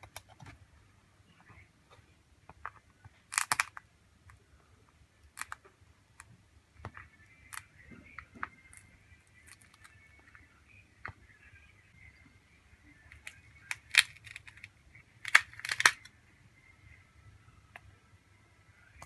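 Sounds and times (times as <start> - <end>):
hand tools clicking on phone parts: 3.3 - 3.8, 13.1 - 16.1.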